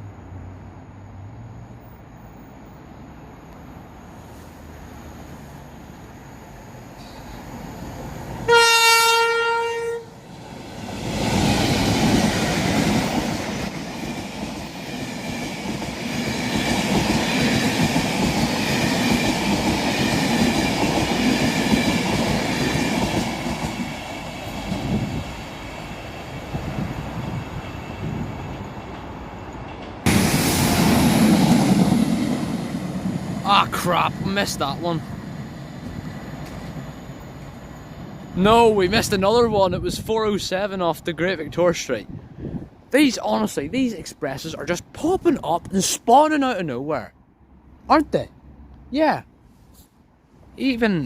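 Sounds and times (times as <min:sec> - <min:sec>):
train rumbling past: 0:00.0 - 0:51.0
train horn: 0:08.4 - 0:10.1.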